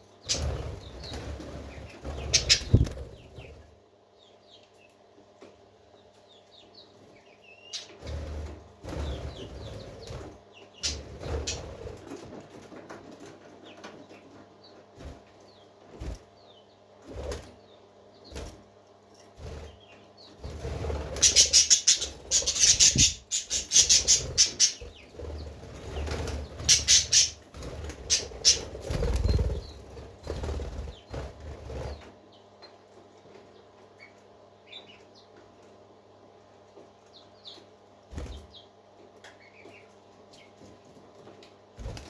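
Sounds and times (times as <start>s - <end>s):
soft bird chirps: 0.0s - 3.6s, 21.1s - 31.2s
parakeets flapping wings: 0.3s - 3.6s, 8.0s - 14.2s, 19.4s - 32.1s, 41.8s - 42.0s.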